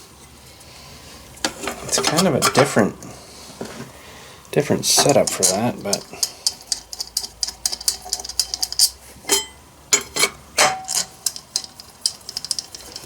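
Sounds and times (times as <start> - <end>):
clicks of parts being handled: 4.9 - 13.0.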